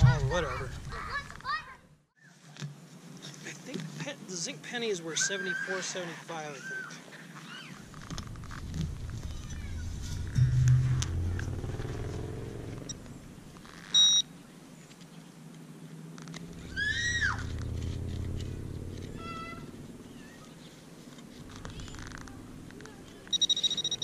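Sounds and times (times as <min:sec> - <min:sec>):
metal detector beeps: 0:13.9 - 0:14.3, 0:23.3 - 0:24.0.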